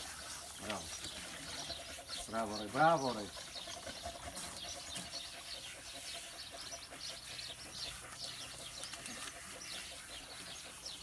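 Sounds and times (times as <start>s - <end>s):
hose sprayer water hiss: 0.0s - 3.2s
small birds chirping: 0.0s - 11.0s.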